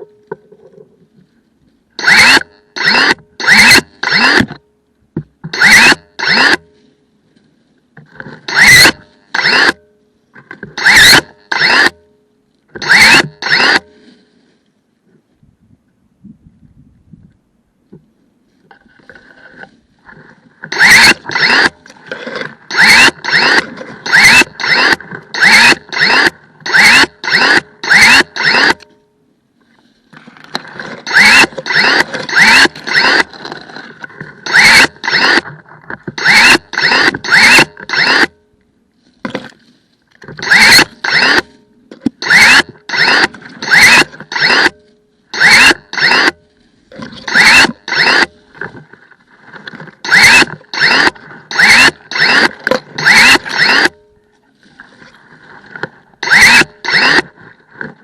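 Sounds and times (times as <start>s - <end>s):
pruning shears motor whirring: 2.0s - 4.6s, 5.5s - 6.7s, 8.4s - 9.8s, 10.8s - 12.0s, 12.8s - 13.9s, 20.6s - 28.9s, 30.5s - 35.5s, 36.1s - 38.4s, 40.4s - 41.6s, 42.2s - 46.4s, 47.1s - 48.4s, 50.0s - 54.0s, 56.2s - 57.4s.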